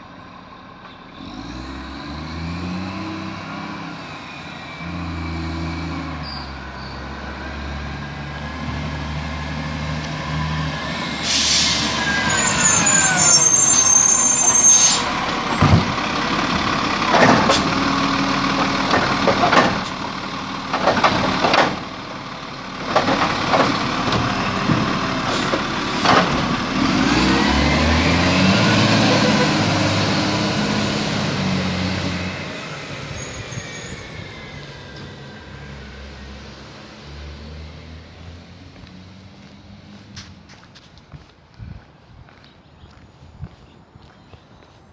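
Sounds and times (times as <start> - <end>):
garbage truck engine revving: 1.2 - 38.0
air brake hiss: 11.2 - 15.3.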